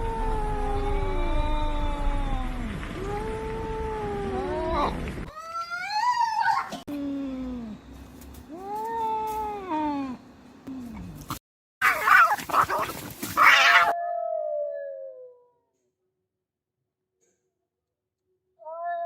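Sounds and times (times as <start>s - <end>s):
cats screeching and hissing: 11.8s - 14.2s
cats yowling: 11.8s - 15.4s, 18.6s - 19.0s.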